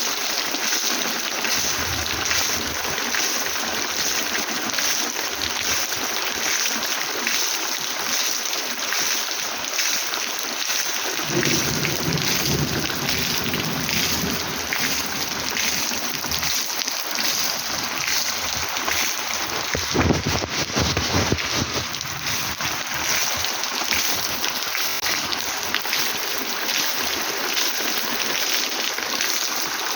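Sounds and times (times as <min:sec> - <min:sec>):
heavy rain falling: 0:00.0 - 0:29.9
thunder rumbling: 0:11.2 - 0:23.4.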